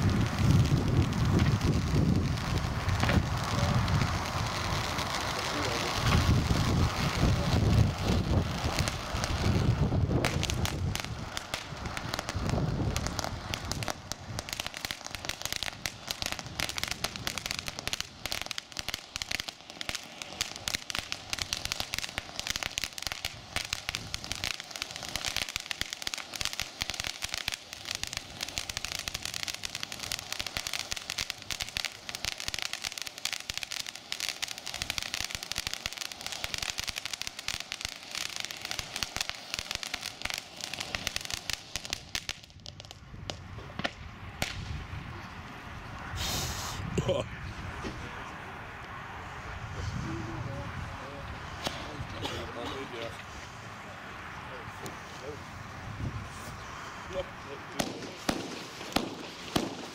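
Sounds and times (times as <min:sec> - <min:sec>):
fireworks crackling: 0:00.0 - 0:59.9.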